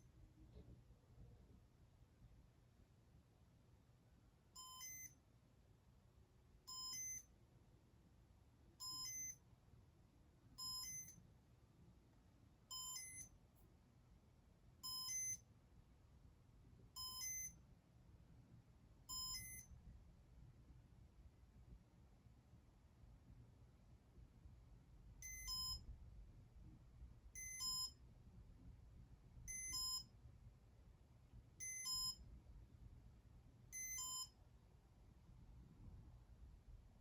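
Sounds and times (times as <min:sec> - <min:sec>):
short electronic beeps: 0:06.7 - 0:07.3, 0:08.8 - 0:09.4, 0:14.8 - 0:15.4, 0:17.0 - 0:17.6, 0:29.5 - 0:30.1, 0:31.6 - 0:32.2, 0:33.8 - 0:34.3.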